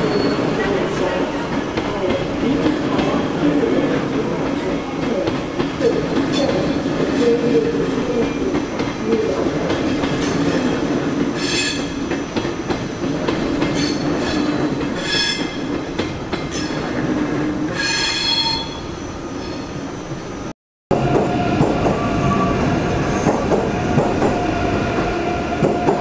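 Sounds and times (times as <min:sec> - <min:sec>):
wheels squealing on rails: 0:00.0 - 0:00.9, 0:11.4 - 0:13.1, 0:13.7 - 0:15.8, 0:16.5 - 0:17.0, 0:17.7 - 0:20.1, 0:21.1 - 0:26.0.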